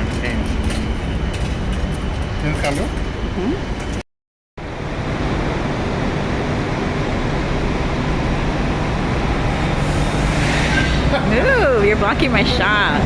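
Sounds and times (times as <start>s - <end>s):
subway station rushing noise: 4.6s - 13.0s.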